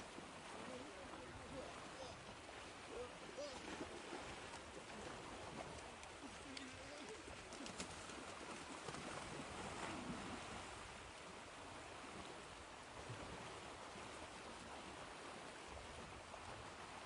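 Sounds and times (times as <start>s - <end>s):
ocean surf washing: 0.0s - 17.0s
faint low bird calls: 1.6s - 3.8s.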